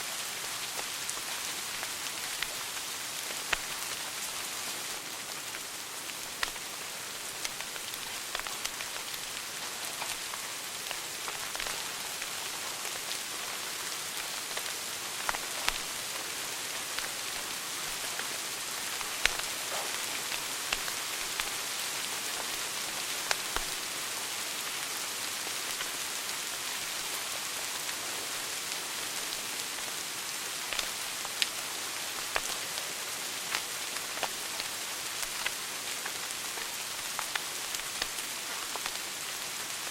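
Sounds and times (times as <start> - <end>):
fireplace fire hissing: 0.0 - 39.9
wood fire popping: 0.8 - 13.5, 14.1 - 22.6, 35.2 - 39.0.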